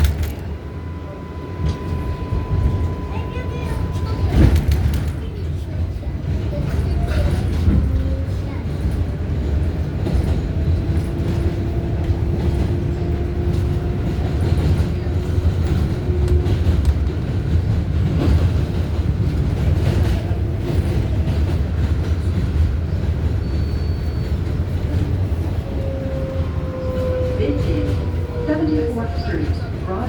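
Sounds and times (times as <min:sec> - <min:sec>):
wheels clicking over rail joints: 0:00.0 - 0:00.6
wheels rumbling on rail: 0:00.0 - 0:30.0.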